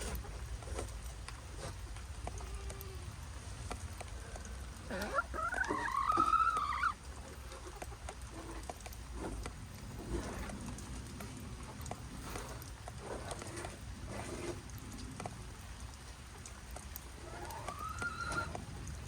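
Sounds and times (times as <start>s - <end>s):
light ticks: 0.6s - 5.8s, 6.5s - 13.9s, 14.6s - 19.0s
chicken calling: 4.8s - 7.0s, 17.2s - 18.6s.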